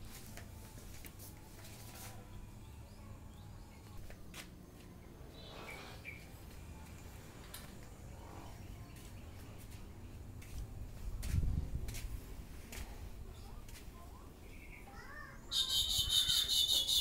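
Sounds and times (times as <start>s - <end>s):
bird chirps: 14.5s - 17.0s.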